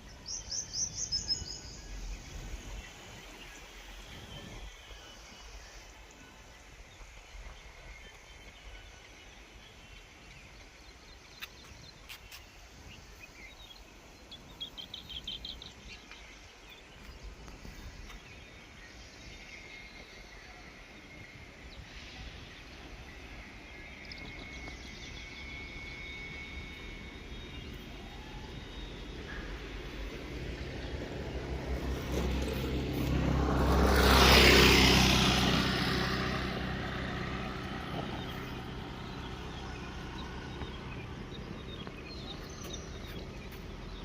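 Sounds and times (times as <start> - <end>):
bird chirps: 7.0 - 33.2, 37.2 - 44.0.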